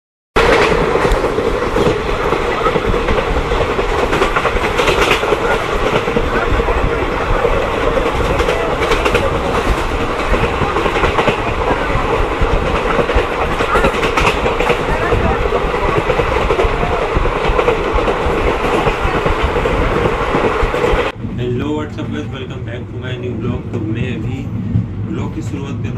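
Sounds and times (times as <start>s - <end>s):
wheels clicking over rail joints: 0.4s - 21.1s
train wheels rumbling on rail: 0.4s - 25.9s.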